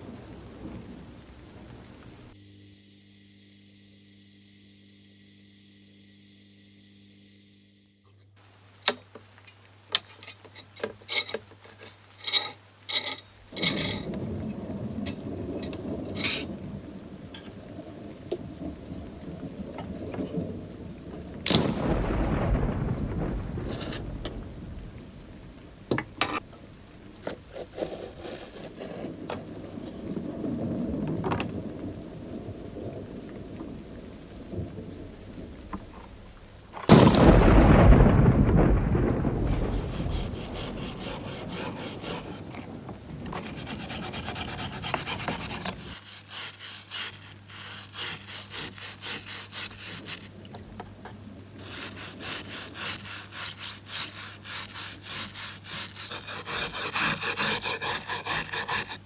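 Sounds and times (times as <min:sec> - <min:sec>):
hand tool scraping strokes: 0:10.0 - 0:16.5, 0:27.2 - 0:30.2, 0:39.6 - 0:42.7, 0:43.3 - 0:50.8, 0:51.6 - 0:59.0
loud rushing thump: 0:21.5 - 0:26.4, 0:36.9 - 0:41.8.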